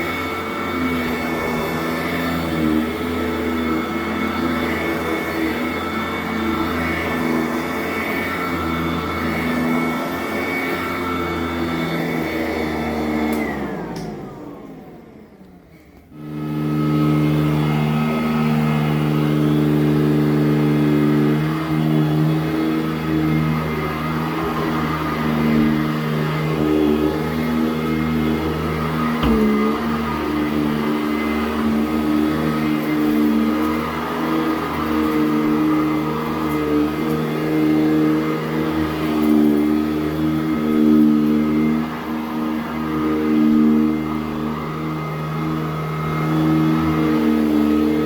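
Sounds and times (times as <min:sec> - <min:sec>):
vacuum cleaner motor hum: 0:00.0 - 0:48.0.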